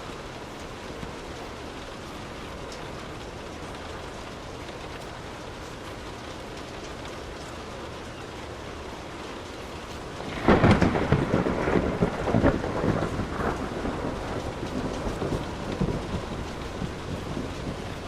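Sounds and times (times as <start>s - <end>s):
steady rain falling: 0.0s - 18.0s
thunderclap: 10.1s - 18.0s.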